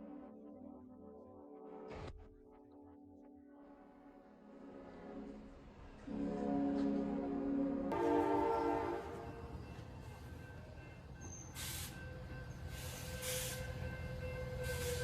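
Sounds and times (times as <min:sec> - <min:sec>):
train horn chord: 0:04.3 - 0:09.6
train rumbling: 0:04.5 - 0:15.0.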